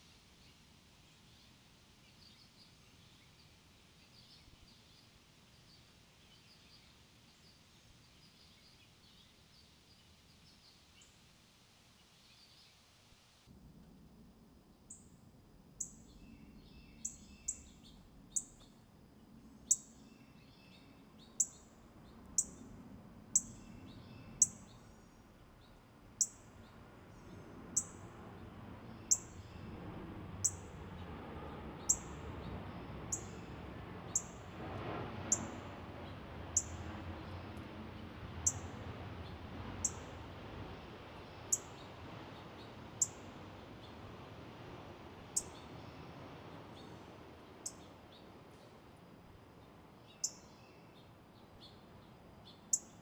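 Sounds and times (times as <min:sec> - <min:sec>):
soft low bird twittering: 0:00.0 - 0:11.2, 0:15.8 - 0:29.8, 0:30.4 - 0:31.1, 0:31.7 - 0:34.4, 0:35.3 - 0:37.6, 0:38.4 - 0:40.1, 0:41.2 - 0:44.0, 0:45.3 - 0:47.0, 0:50.0 - 0:53.0
faint low outdoor rumble: 0:00.0 - 0:53.0
songbird high downward chirp: 0:15.8 - 0:18.8.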